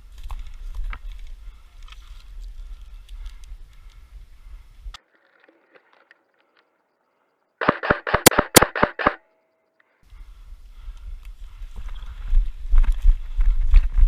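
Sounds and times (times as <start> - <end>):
airsoft gun shots: 7.6 - 9.2.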